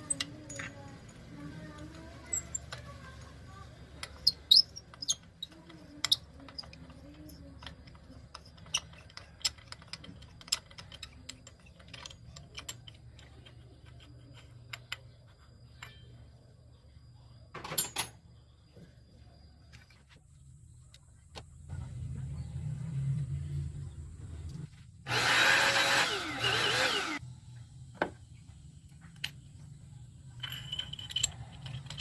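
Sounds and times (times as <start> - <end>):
hand tools clinking: 0.0 - 3.2, 30.4 - 32.0.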